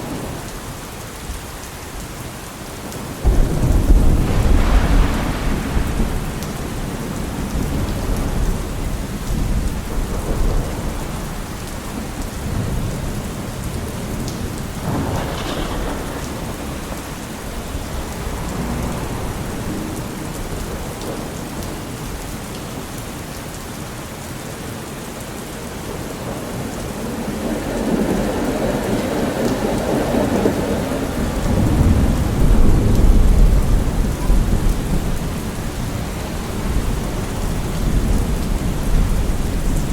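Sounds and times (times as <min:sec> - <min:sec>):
steady rain falling: 0:00.0 - 0:39.9
low rumble: 0:03.2 - 0:09.4, 0:14.8 - 0:21.4.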